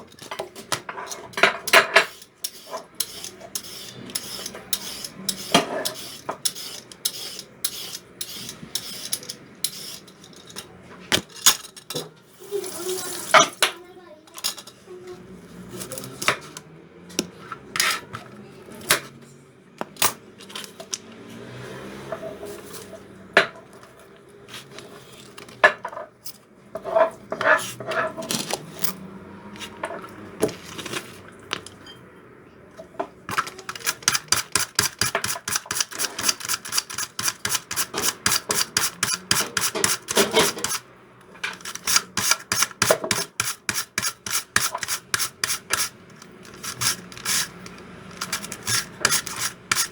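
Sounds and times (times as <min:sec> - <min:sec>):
utensils clinking against dishes: 0:00.0 - 0:14.9, 0:32.7 - 0:49.9.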